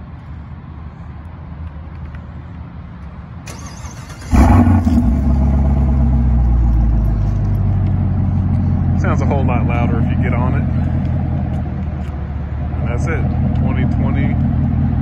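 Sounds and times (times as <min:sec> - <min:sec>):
car engine starting and idling: 0:03.0 - 0:15.0
starter motor whirring: 0:03.5 - 0:05.3.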